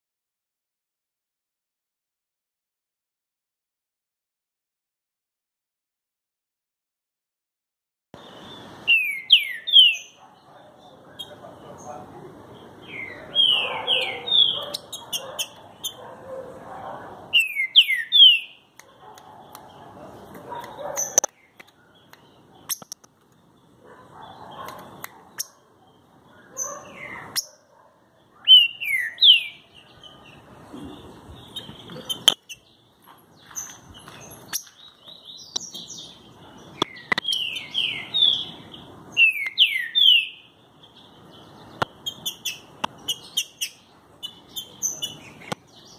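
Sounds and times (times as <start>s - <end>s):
bird whistling song: 8.2s - 10.2s, 12.9s - 16.0s, 17.3s - 18.6s, 28.4s - 29.7s, 36.8s - 38.6s, 39.2s - 40.5s
sharp bird clicks: 18.3s - 23.5s, 24.5s - 25.6s, 31.5s - 32.7s, 36.8s - 37.7s, 41.8s - 45.7s.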